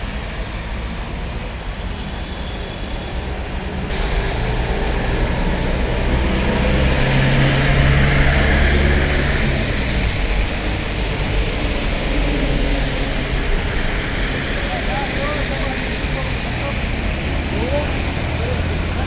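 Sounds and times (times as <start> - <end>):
vehicle engine humming: 0.0 - 19.0
rain hissing: 3.9 - 19.0.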